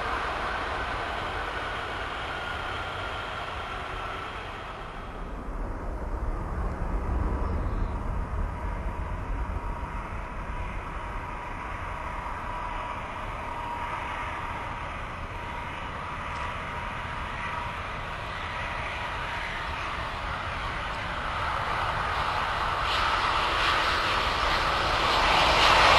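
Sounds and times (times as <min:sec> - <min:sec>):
jet engine noise: 0:00.0 - 0:25.9.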